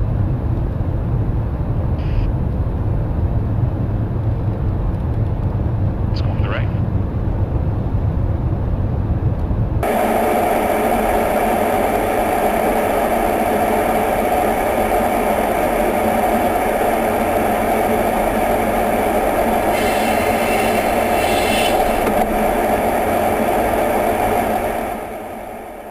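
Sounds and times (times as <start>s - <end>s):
low rumble: 0.0s - 15.7s
jet engine humming: 0.0s - 25.9s.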